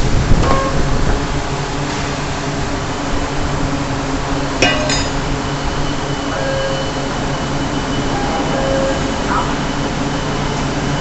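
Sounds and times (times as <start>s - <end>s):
industrial machinery hum: 0.0s - 11.0s
light metallic clink: 4.6s - 5.2s
sharp metallic clank: 4.6s - 5.4s.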